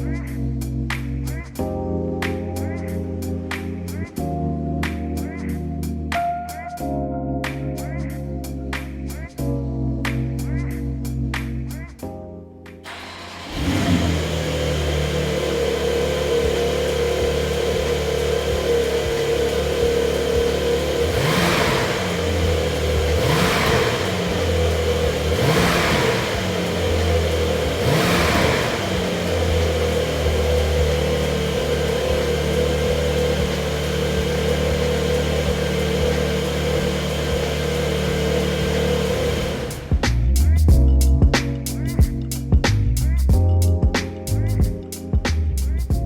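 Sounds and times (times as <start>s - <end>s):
car engine idling and revving: 0.0s - 1.6s, 12.8s - 43.4s.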